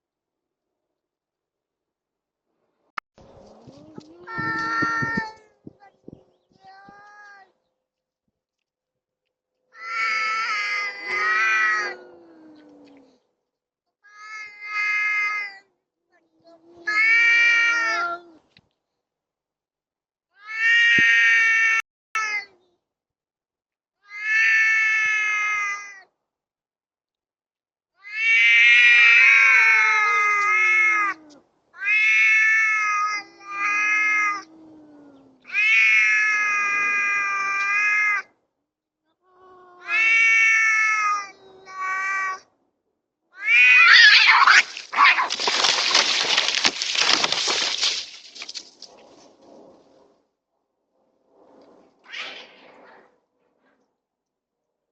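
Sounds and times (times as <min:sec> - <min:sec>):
cats yowling: 0:03.5 - 0:05.5, 0:09.8 - 0:13.2, 0:14.2 - 0:15.6, 0:16.3 - 0:18.4, 0:24.1 - 0:26.0, 0:28.0 - 0:38.3, 0:39.3 - 0:42.5, 0:43.4 - 0:48.6
cats screeching and hissing: 0:03.5 - 0:05.9, 0:09.8 - 0:13.1, 0:14.3 - 0:15.6, 0:16.4 - 0:18.4, 0:24.1 - 0:26.0, 0:28.0 - 0:38.3, 0:39.4 - 0:42.4, 0:43.4 - 0:48.9.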